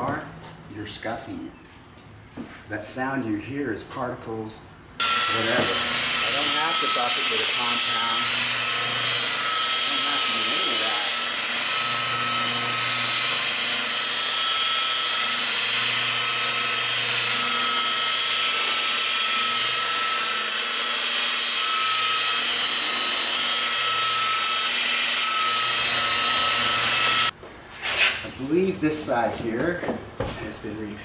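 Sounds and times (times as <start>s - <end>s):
electric power tool whining: 5.0s - 27.4s.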